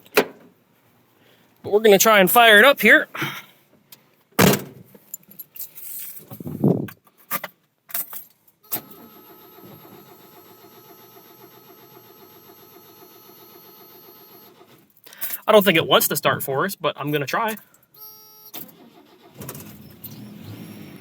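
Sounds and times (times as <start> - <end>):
keys jingling: 5.0 - 6.9.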